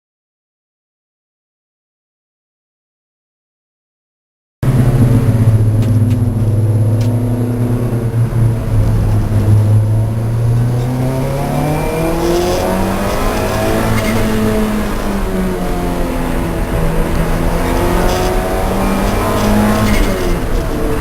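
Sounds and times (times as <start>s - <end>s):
race car engine revving: 4.6s - 21.0s.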